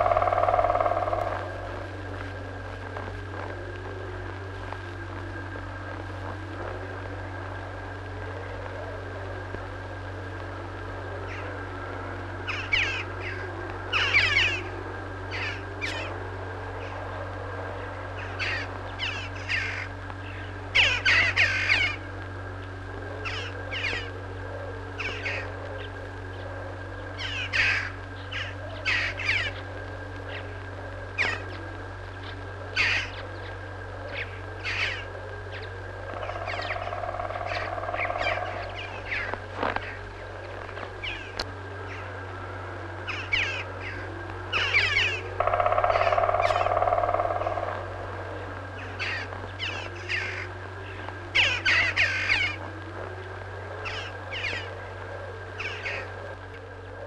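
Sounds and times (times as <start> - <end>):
birds calling: 0.0 - 2.6, 12.4 - 16.2, 17.8 - 22.1, 23.2 - 42.2, 43.0 - 54.8, 55.5 - 56.5
steady low hum: 0.0 - 57.0.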